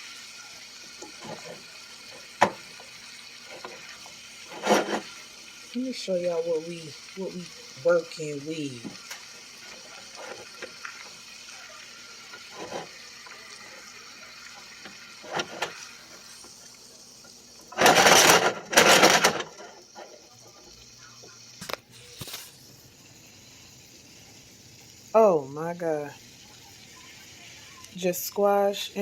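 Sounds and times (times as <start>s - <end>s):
vegetables sizzling in a pan: 0.0s - 29.0s.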